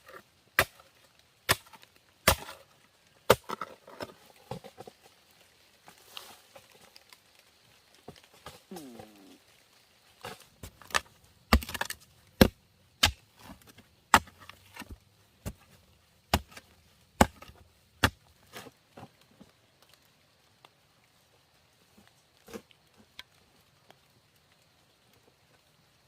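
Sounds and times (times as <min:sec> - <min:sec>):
blade chopping wood: 0:00.6 - 0:00.8, 0:01.5 - 0:02.6, 0:03.3 - 0:03.8, 0:10.2 - 0:18.6.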